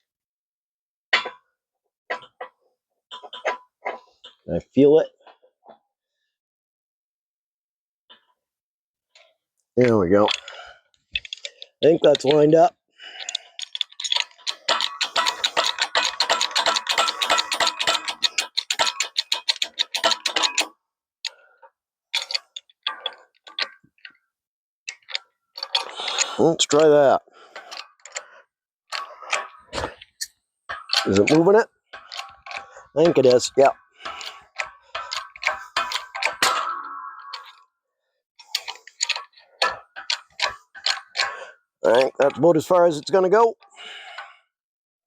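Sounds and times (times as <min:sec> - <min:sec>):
sharp metal clicks: 0:09.8 - 0:12.6, 0:13.2 - 0:20.7, 0:22.1 - 0:24.2, 0:24.9 - 0:28.3, 0:28.9 - 0:37.6, 0:38.4 - 0:44.3
ratchet wrench clicking: 0:13.3 - 0:20.7
metal creaking squeal: 0:34.1 - 0:37.6.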